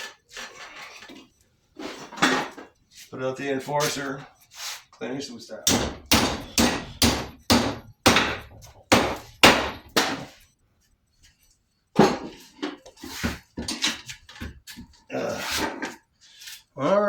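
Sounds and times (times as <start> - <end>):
hammer striking metal bar: 5.6 - 10.4.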